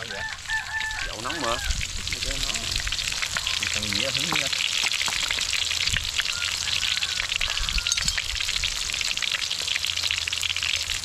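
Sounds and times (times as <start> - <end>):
food crackling in hot oil: 0.0 - 11.0.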